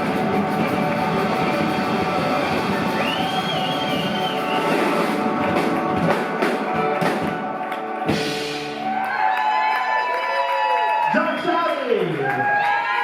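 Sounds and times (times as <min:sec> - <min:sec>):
drum kit hits: 0:00.0 - 0:09.0
live rock band playing: 0:00.0 - 0:09.5.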